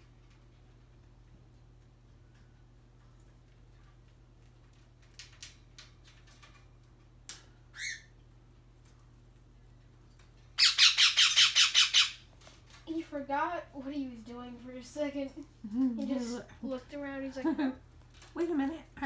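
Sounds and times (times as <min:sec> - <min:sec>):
parrot rattling squawk: 0:07.7 - 0:08.1, 0:10.6 - 0:12.3.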